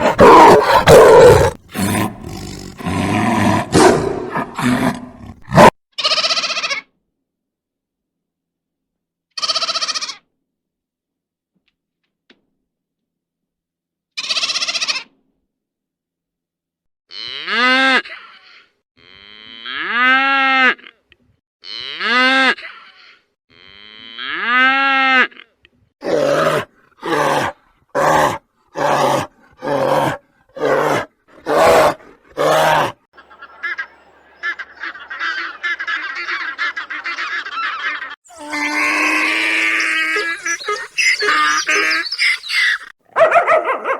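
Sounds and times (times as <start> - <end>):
high-pitched animal chattering: 0.0 - 2.8, 38.3 - 42.9
long rising and falling animal calls: 0.0 - 2.8, 33.3 - 43.0
short sharp animal calls: 38.3 - 42.9.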